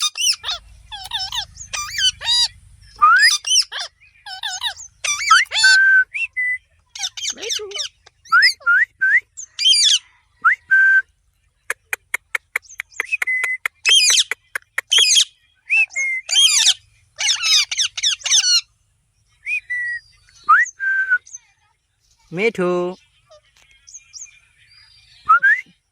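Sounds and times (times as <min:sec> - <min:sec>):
parrot chirping and squawking: 0:00.0 - 0:05.8, 0:06.9 - 0:08.6, 0:09.4 - 0:10.2, 0:13.8 - 0:15.3, 0:15.9 - 0:18.7.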